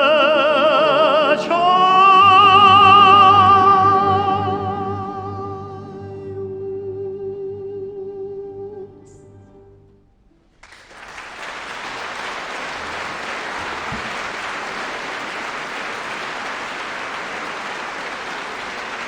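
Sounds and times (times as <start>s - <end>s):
audience applause: 10.6s - 19.0s.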